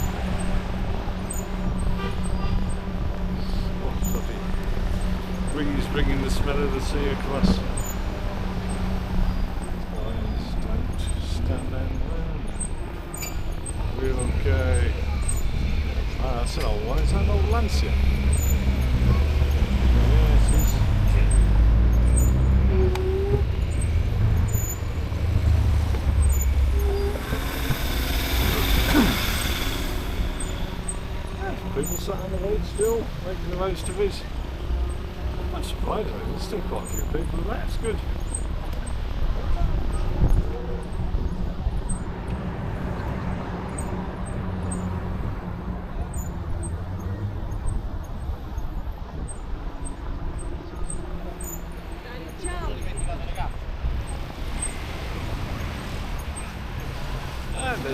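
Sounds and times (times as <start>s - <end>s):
street traffic: 0.0s - 57.9s
wind and road rumble: 0.0s - 57.9s
vehicle engine running: 12.3s - 38.1s
high hiss: 25.5s - 33.0s.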